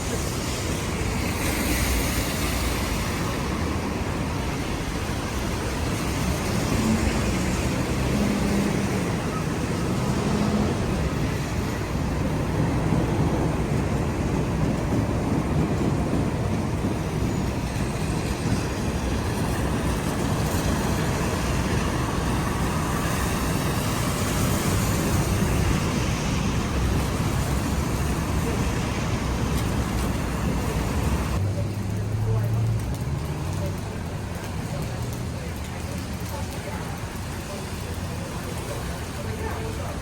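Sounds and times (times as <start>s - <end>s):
vehicles passing on wet roads: 0.0s - 40.0s.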